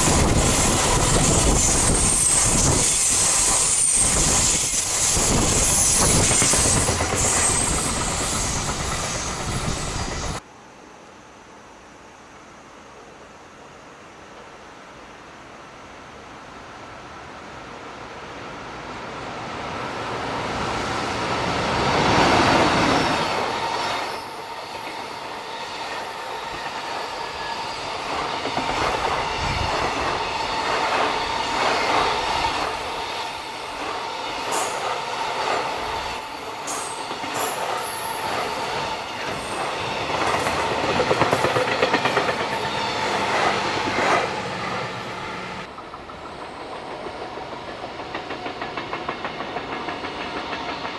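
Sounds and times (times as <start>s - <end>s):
high wheel squeal: 0.0s - 10.4s, 18.4s - 45.7s.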